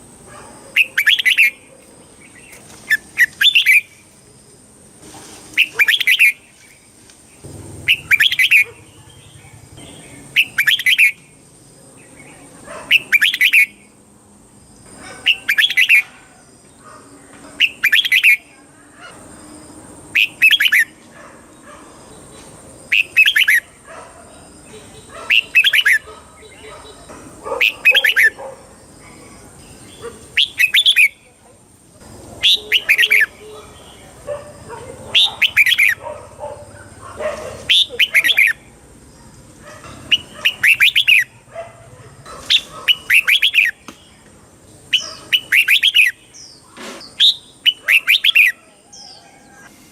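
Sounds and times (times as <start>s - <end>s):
bird singing short phrase: 7.4s - 11.2s.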